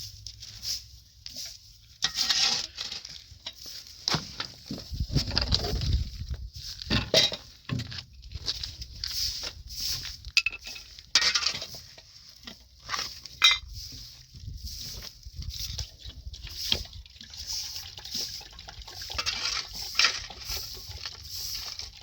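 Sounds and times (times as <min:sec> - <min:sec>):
metal objects clinking and knocking: 0:06.9 - 0:08.0, 0:10.4 - 0:13.7, 0:19.0 - 0:20.6.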